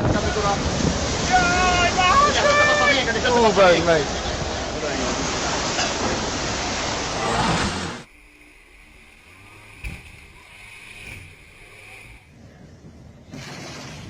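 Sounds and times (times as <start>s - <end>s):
rushing water and wind: 0.0s - 12.4s
high whine: 6.9s - 12.4s.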